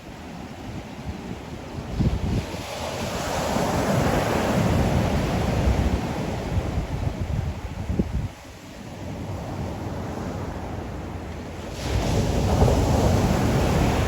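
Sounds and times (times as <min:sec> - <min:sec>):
ocean waves washing: 0:00.0 - 0:14.0
wind buffeting microphone: 0:00.0 - 0:14.0.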